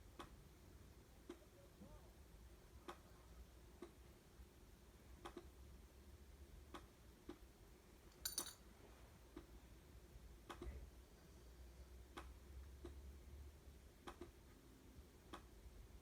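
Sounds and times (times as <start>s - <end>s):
low room hum: 0.0s - 16.0s
rattle of clicks: 8.2s - 8.6s.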